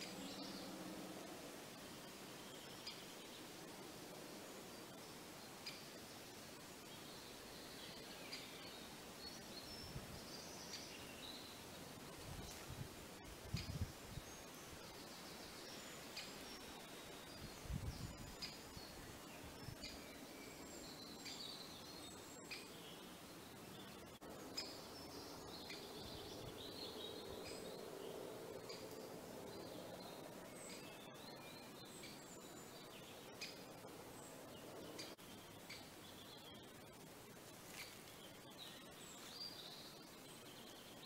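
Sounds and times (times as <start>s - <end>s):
bird chirps: 1.8s - 3.4s, 13.5s - 36.8s.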